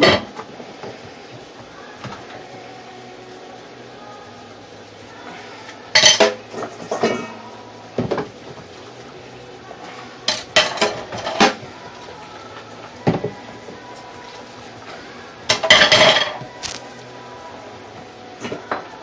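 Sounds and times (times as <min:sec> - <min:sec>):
dishes and cutlery clinking: 0:06.0 - 0:07.4, 0:10.3 - 0:11.6, 0:15.5 - 0:16.8.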